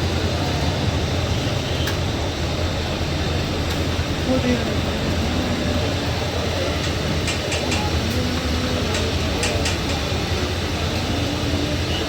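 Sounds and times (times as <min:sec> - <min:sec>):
faint background voices: 0:04.2 - 0:12.0.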